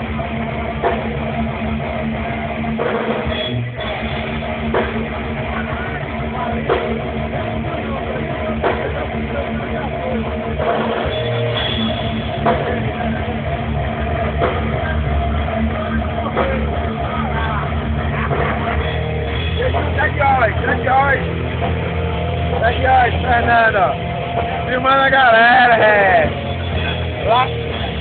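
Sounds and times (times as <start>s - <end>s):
rock band playing: 0.0s - 28.0s.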